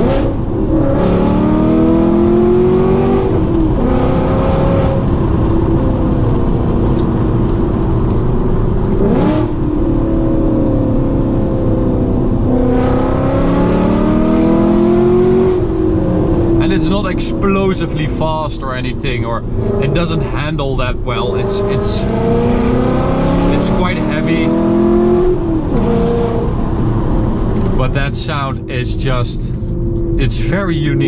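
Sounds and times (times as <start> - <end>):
car engine revving hard: 0.0 - 7.6, 8.9 - 18.6, 19.2 - 31.0.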